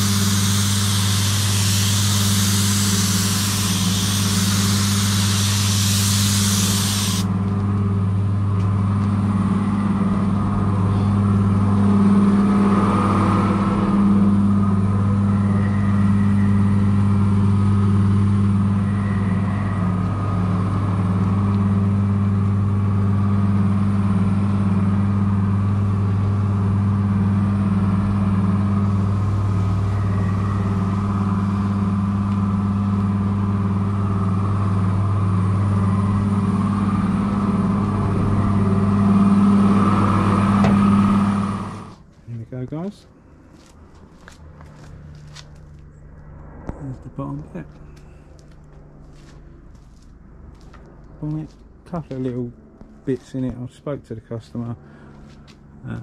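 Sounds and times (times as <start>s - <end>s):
loud hiss: 0.0s - 7.3s
vehicle engine humming: 0.0s - 56.0s.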